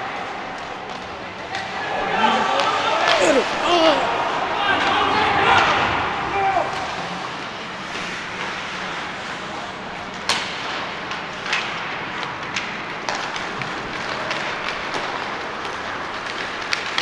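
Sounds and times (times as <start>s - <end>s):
arena noise: 1.1s - 7.8s
hockey sticks and puck clacking: 6.7s - 17.0s.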